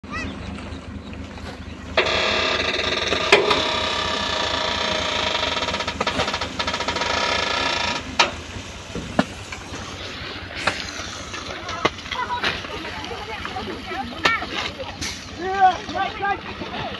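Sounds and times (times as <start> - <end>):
garbage truck machinery whine: 0.0 - 13.8
mechanical knocks: 2.0 - 9.7.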